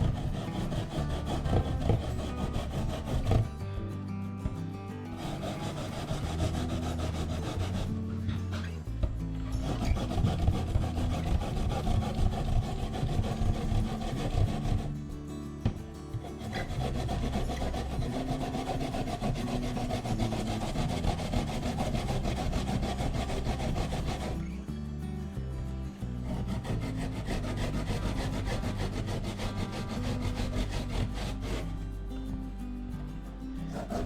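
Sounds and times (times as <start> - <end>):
radish being grated: 0.0 - 34.0.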